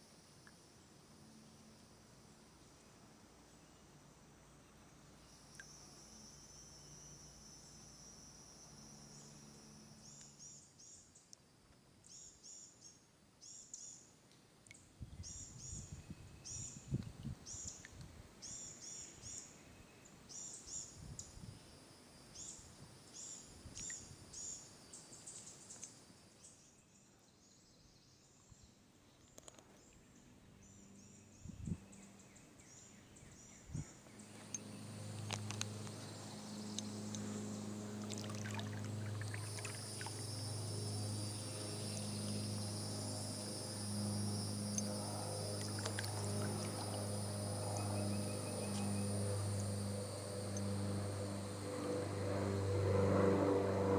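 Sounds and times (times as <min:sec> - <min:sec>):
steady high buzz: 0:30.6 - 0:53.9.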